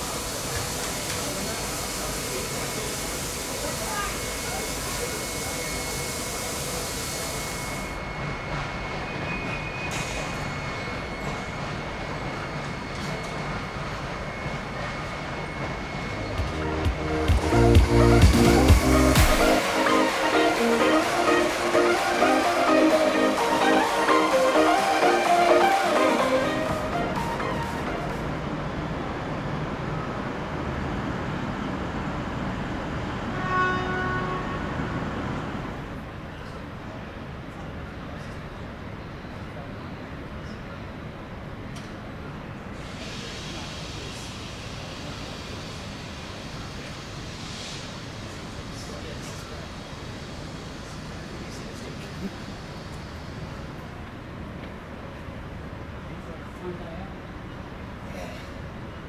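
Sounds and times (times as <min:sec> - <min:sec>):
steam locomotive hissing: 0:00.0 - 0:29.2, 0:42.5 - 0:54.5
train rumbling: 0:08.0 - 0:36.2
train horn toot: 0:33.2 - 0:35.0.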